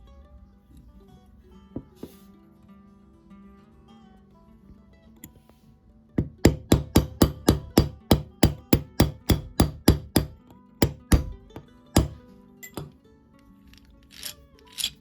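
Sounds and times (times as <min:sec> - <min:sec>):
quiet acoustic guitar music: 0:00.0 - 0:06.2
hammer tapping: 0:06.2 - 0:12.9.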